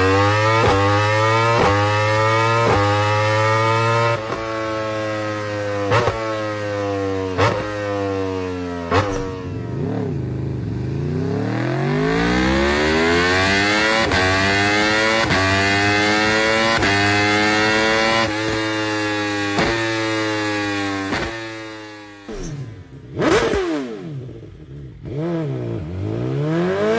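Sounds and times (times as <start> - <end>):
motorcycle engine revving: 0.0 - 26.9.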